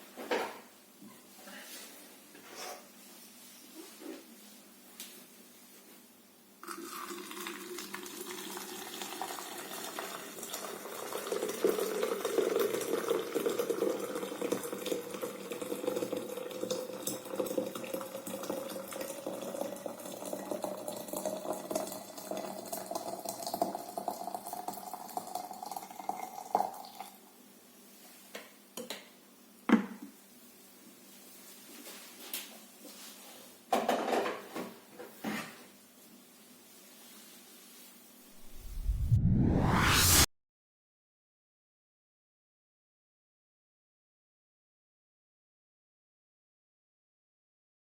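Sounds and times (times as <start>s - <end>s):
water pouring into teapot: 6.6s - 27.2s.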